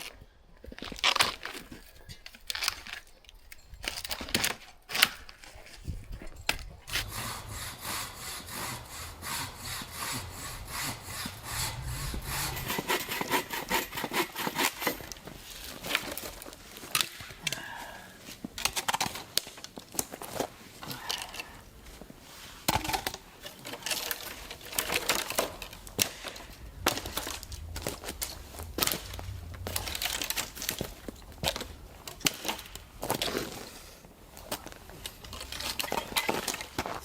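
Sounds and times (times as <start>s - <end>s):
hand saw cutting wood: 6.9s - 16.2s, 23.7s - 30.9s.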